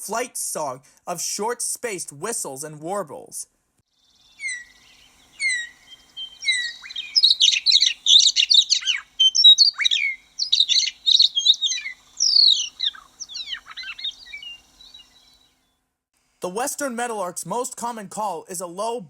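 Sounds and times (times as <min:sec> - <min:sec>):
meadowlark whistling song: 0:03.9 - 0:15.7.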